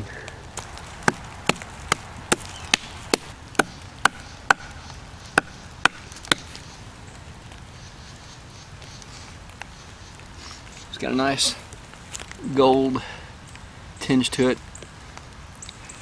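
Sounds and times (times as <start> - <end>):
sharp strikes on wood: 0.6 - 6.6.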